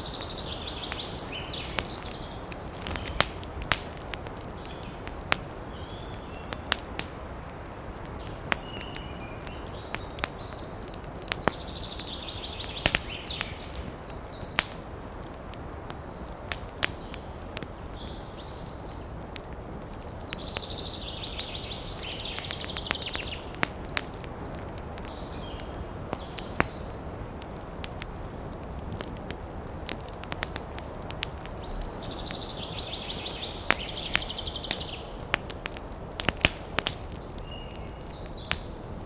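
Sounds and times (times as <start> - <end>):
campfire crackling: 0.0 - 39.0.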